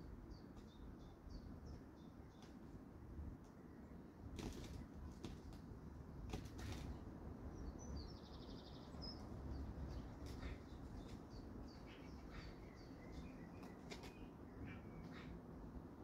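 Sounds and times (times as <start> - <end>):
birds chirping: 7.5 - 15.6.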